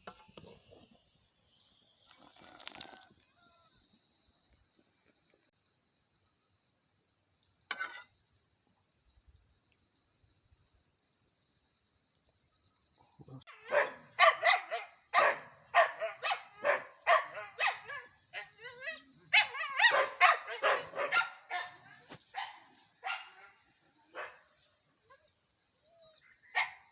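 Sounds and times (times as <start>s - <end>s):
insects trilling: 1.5s - 26.9s
dog barking: 13.5s - 24.6s, 26.5s - 26.9s.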